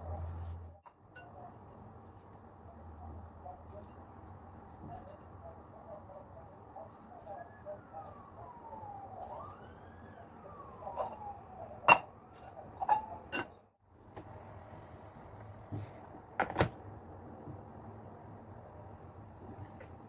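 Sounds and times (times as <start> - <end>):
faint siren wailing: 5.4 - 13.6
kitchenware clinking: 11.0 - 11.2, 11.9 - 13.6.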